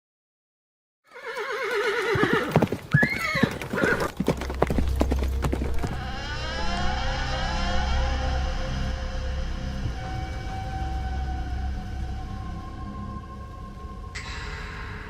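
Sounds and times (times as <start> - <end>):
horse neighing: 1.1 - 4.2
hooves clip-clopping: 1.2 - 6.0.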